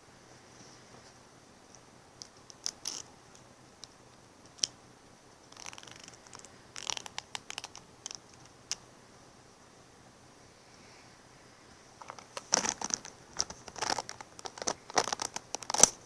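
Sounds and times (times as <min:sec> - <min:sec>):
handling clicks and crackles: 0:05.5 - 0:08.8, 0:12.0 - 0:16.0.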